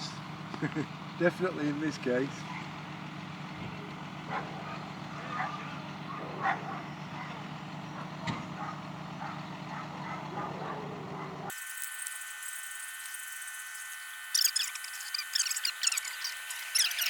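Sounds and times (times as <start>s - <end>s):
angle grinder whining: 0.0s - 17.0s
grinder disc scraping steel: 11.5s - 17.0s.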